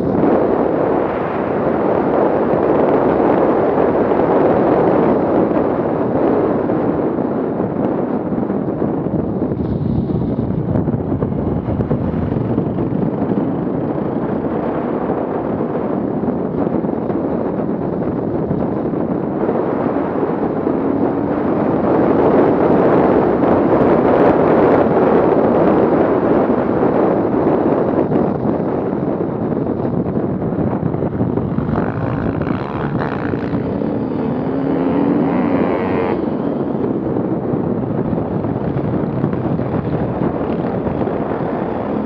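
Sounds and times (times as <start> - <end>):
wind noise on microphone: 0.0 - 42.0
off-road vehicle engine running: 28.3 - 42.0.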